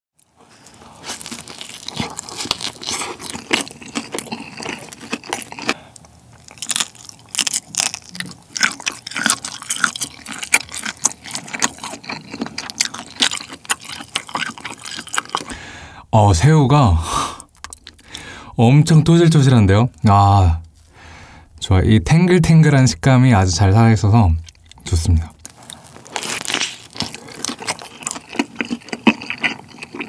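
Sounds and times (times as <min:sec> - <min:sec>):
pizza crust crunching: 0:00.2 - 0:15.6, 0:24.4 - 0:30.0.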